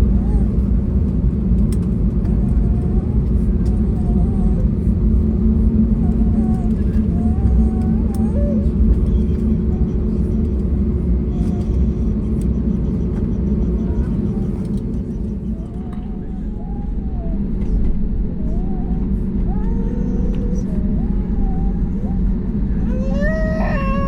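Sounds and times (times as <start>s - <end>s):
faint voices: 0.0s - 17.8s
airliner cabin rumble: 0.0s - 24.0s.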